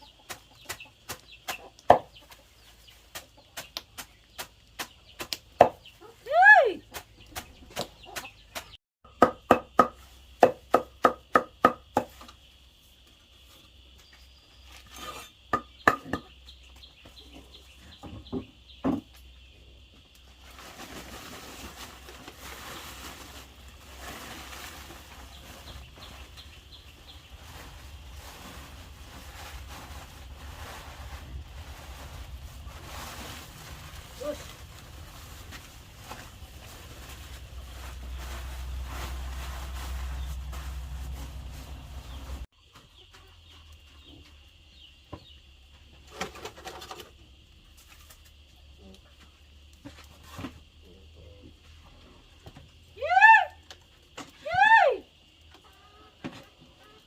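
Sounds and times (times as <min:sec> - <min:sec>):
steady rustling: 0:20.4 - 0:42.5.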